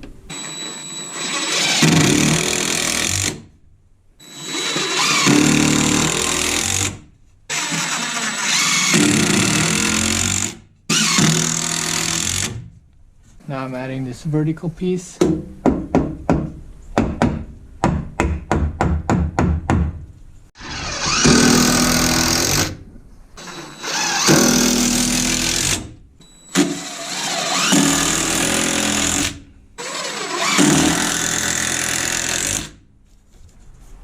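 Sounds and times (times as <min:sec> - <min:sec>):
power drill driving fasteners: 0:00.3 - 0:03.4, 0:04.2 - 0:12.6, 0:20.6 - 0:22.8, 0:23.4 - 0:32.8.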